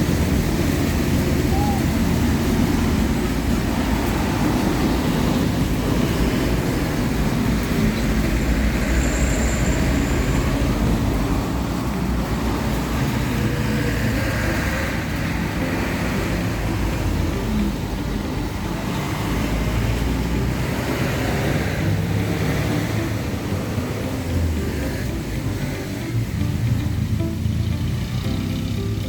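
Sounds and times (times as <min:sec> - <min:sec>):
low rumble of passing vehicles: 0:00.0 - 0:29.0.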